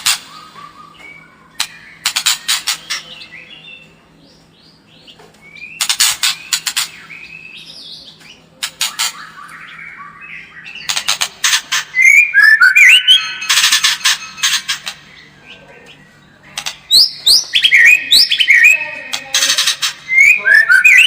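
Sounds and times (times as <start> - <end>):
bird whistles: 0.1 - 3.0, 11.9 - 13.7, 20.1 - 21.0
bird clicking chatter: 1.6 - 3.2, 5.8 - 7.0, 8.6 - 9.6, 10.8 - 12.0, 16.5 - 17.8.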